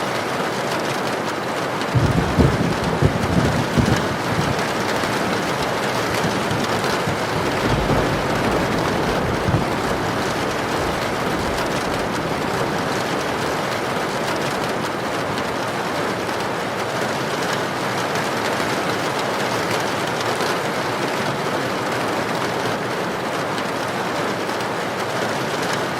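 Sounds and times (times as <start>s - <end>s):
heavy rain pouring: 0.0s - 25.9s.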